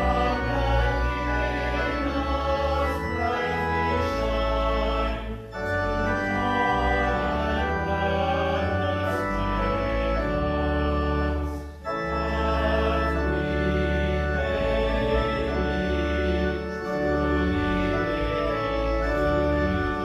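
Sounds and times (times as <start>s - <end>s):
church organ sustained chords: 0.0s - 20.0s.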